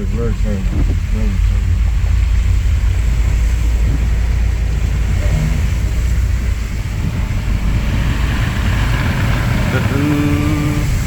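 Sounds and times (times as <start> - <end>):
engine and tyres rumble: 0.0 - 11.0
water and rain hiss: 0.0 - 11.0.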